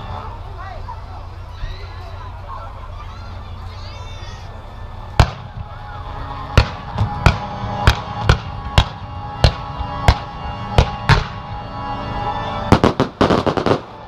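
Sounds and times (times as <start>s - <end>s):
music soundtrack: 0.0s - 14.0s
fireworks bursting: 4.9s - 11.5s, 12.7s - 14.0s
firework cracks: 12.7s - 14.0s.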